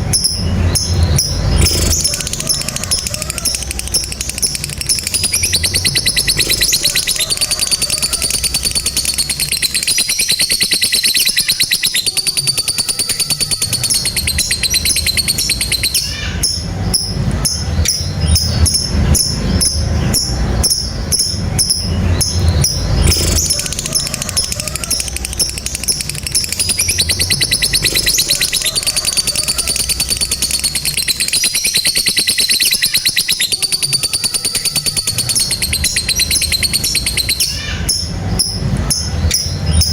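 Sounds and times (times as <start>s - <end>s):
low rumble: 0.0s - 9.8s, 14.2s - 30.8s
lovebirds trilling chatter: 0.0s - 39.9s.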